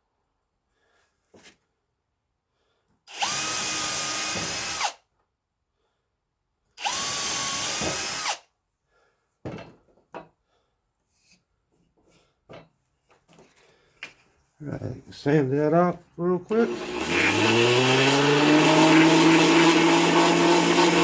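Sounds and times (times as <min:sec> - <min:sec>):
power tool motor spinning: 0:03.1 - 0:04.9, 0:06.8 - 0:08.4, 0:16.5 - 0:21.0.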